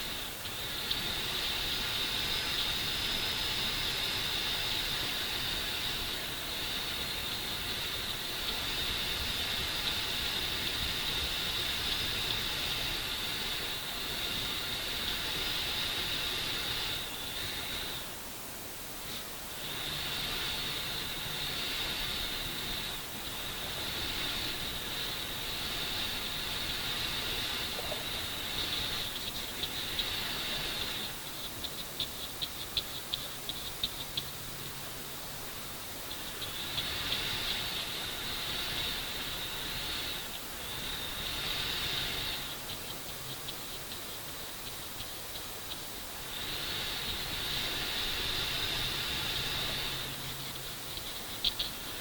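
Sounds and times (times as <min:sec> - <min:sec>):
faint high whine: 0:00.0 - 0:52.0
steady hiss: 0:00.0 - 0:52.0.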